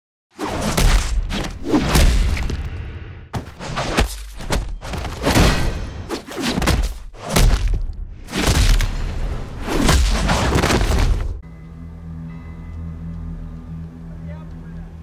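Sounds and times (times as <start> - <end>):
punch and kick impacts: 0.4 - 11.4.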